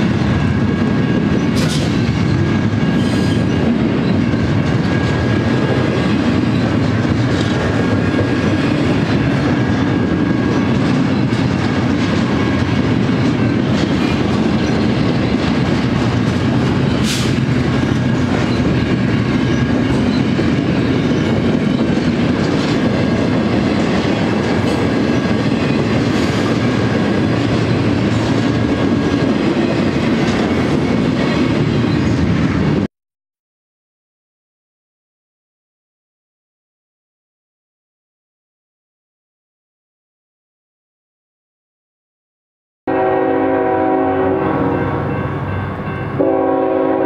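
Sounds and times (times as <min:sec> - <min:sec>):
wheels rumbling on rail: 0:00.0 - 0:32.9, 0:42.9 - 0:47.0.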